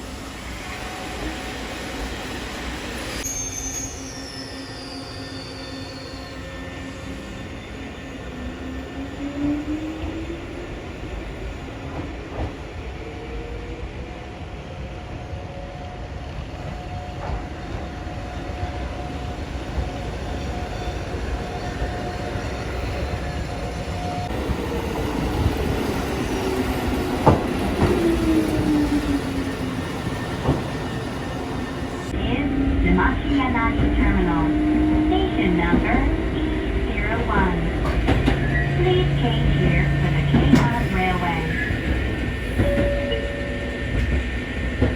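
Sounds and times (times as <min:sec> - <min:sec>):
train motor whine: 0:17.2 - 0:44.9.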